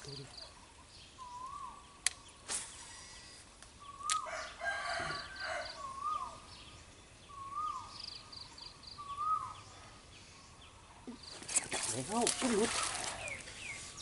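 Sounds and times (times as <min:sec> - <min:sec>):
rooster crowing: 0:04.2 - 0:05.8
bird whistling: 0:07.3 - 0:07.9, 0:09.0 - 0:09.6.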